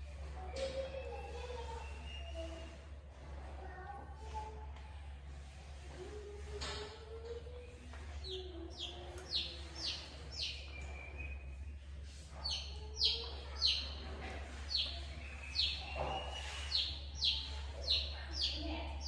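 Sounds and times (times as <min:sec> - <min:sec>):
bird chirping and whistling: 0:14.7 - 0:18.5.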